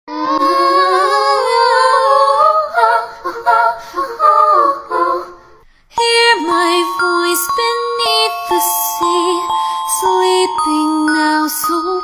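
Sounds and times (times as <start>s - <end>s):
woman singing wordless melody: 0.2s - 12.0s.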